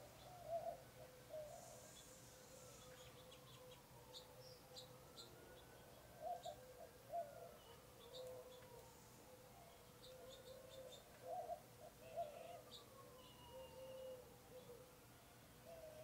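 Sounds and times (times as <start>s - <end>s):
small birds chirping: 0.0s - 14.9s
steady faint hum: 0.0s - 16.0s
low warbling bird calls: 9.6s - 14.9s.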